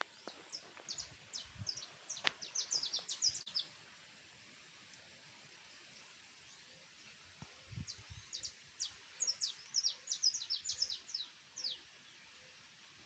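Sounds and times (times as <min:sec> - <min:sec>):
small birds chirping: 0:00.0 - 0:03.7, 0:06.4 - 0:12.4.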